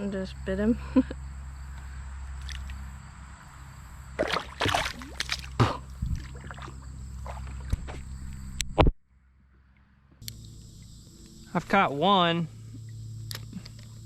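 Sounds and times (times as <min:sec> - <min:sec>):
steady low hum: 0:00.0 - 0:14.0
water splashing and sloshing: 0:02.4 - 0:02.8, 0:04.1 - 0:08.4.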